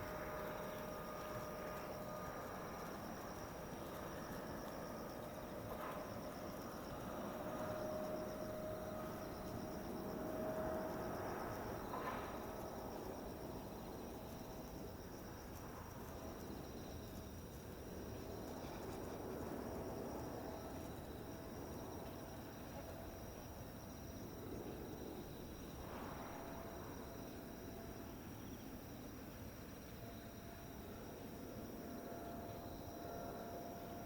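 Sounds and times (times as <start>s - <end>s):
distant jet whine: 0.0s - 28.8s, 29.9s - 34.0s
insects chirping: 0.0s - 34.0s
low outdoor hum: 0.0s - 34.0s.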